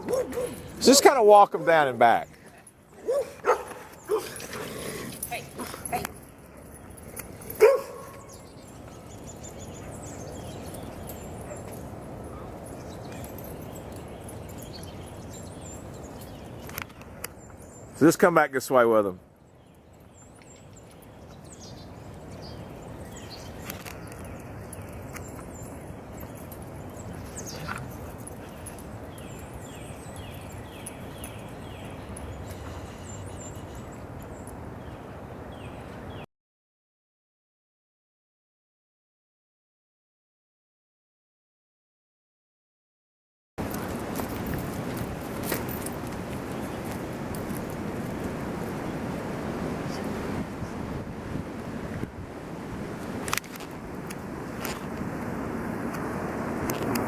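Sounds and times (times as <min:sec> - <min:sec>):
dog barking: 0:00.0 - 0:00.6, 0:03.0 - 0:04.3, 0:07.6 - 0:08.3
background street rumble: 0:00.0 - 0:19.2.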